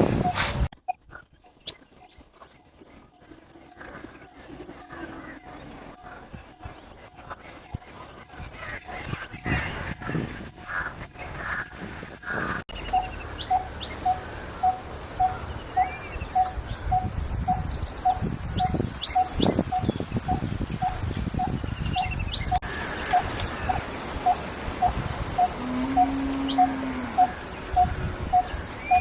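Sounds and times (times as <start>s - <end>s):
small birds chirping: 0.0s - 29.0s
bird repeating tuk note: 25.4s - 29.0s.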